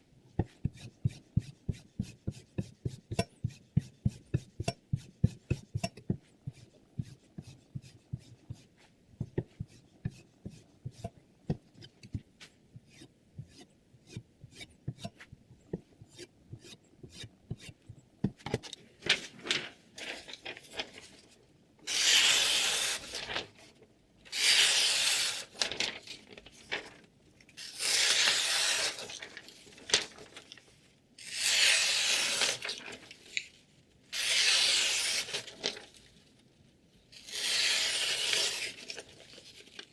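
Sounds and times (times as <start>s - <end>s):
knife edge rasping strokes: 9.6s - 11.1s, 12.8s - 15.2s, 16.1s - 17.8s, 21.9s - 23.2s, 24.4s - 25.4s, 27.6s - 29.0s, 34.2s - 35.4s.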